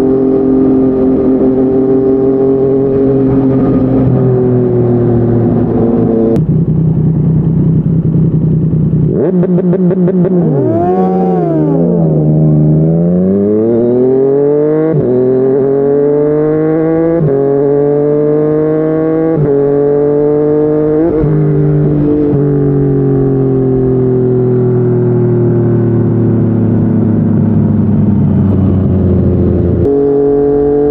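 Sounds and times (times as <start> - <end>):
motorcycle engine revving: 0.0 - 30.9
exhaust crackle: 3.1 - 9.2
motorcycle upshifts: 9.0 - 15.7.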